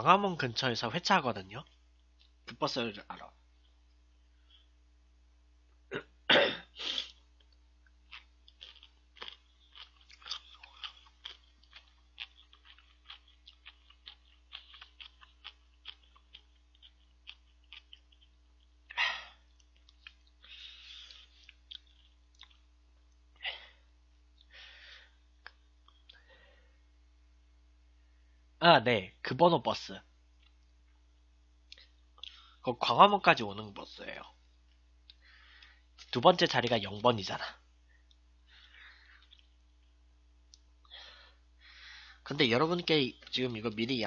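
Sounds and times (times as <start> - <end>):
man chewing and sucking: 6.8 - 23.4, 38.0 - 41.0
breathy bursts: 40.9 - 42.3.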